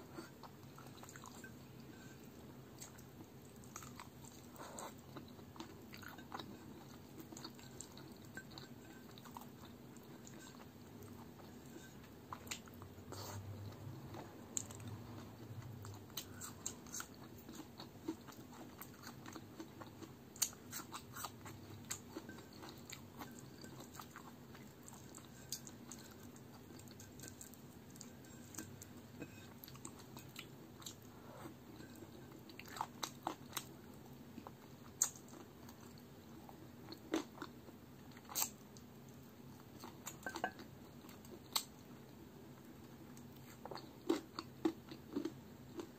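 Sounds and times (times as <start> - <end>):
chewing and biting food: 2.8 - 33.8, 43.3 - 45.9.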